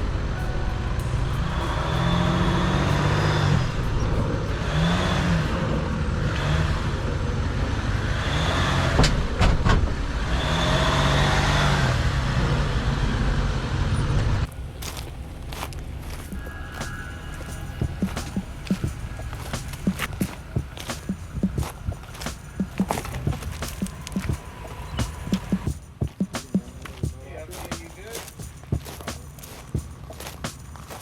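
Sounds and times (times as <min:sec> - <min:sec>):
off-road vehicle engine revving: 0:00.0 - 0:25.7
tyres on gravel: 0:14.5 - 0:31.0
sharp knocks: 0:16.3 - 0:27.9.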